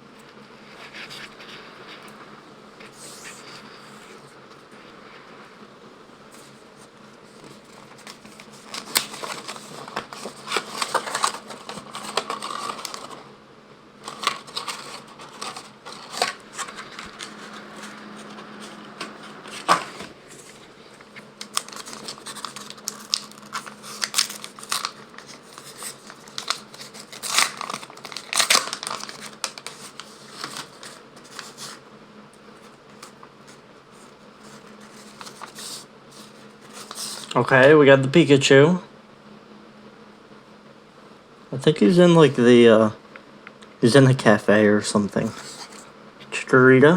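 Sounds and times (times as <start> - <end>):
faint steady hum: 0.0 - 46.9
cards rustling and clicking: 7.3 - 13.3, 14.0 - 31.8, 32.6 - 37.7, 45.2 - 45.9
plastic wrapper crinkling and tearing: 7.4 - 13.3, 14.0 - 31.8, 34.5 - 37.6.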